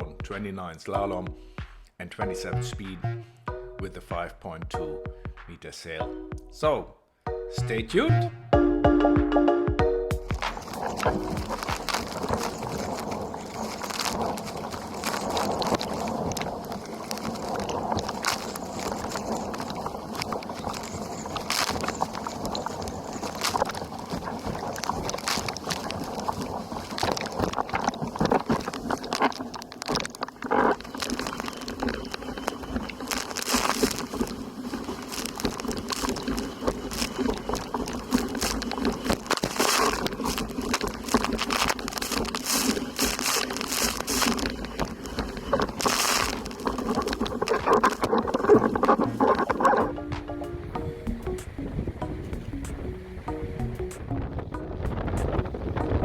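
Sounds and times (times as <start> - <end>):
rushing water: 10.2 - 56.0
water splashing against hull: 10.2 - 56.0
wind noise: 10.2 - 56.0.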